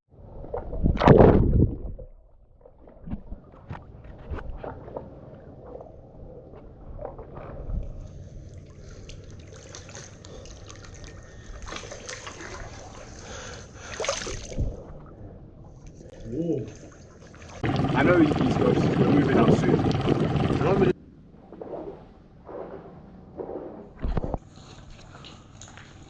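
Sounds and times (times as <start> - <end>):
water sloshing and trickling: 0.2 - 20.6
small splashes and knocks: 8.6 - 13.2, 13.9 - 14.8.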